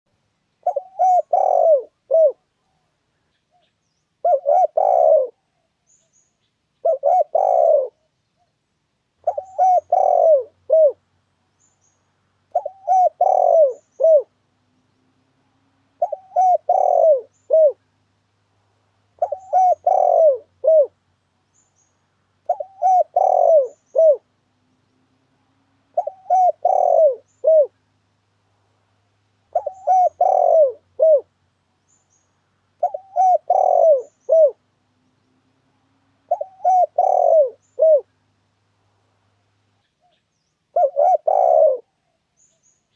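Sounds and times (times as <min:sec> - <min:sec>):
dove cooing: 0:00.6 - 0:02.9, 0:04.2 - 0:05.7, 0:06.8 - 0:08.1, 0:09.2 - 0:11.0, 0:12.5 - 0:14.4, 0:15.9 - 0:17.9, 0:19.2 - 0:21.0, 0:22.4 - 0:24.4, 0:25.4 - 0:27.8, 0:29.5 - 0:31.4, 0:32.8 - 0:34.8, 0:36.2 - 0:38.2, 0:40.7 - 0:42.2.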